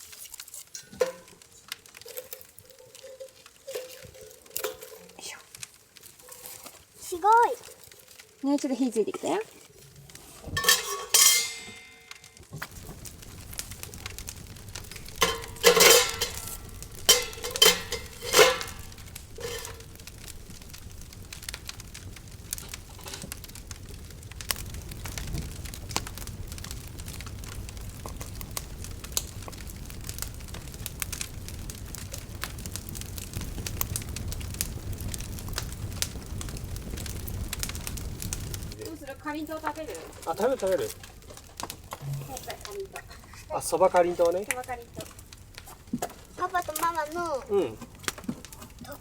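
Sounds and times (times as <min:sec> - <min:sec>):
campfire crackling and popping: 0:00.0 - 0:49.0
ringing clinks: 0:10.6 - 0:12.2.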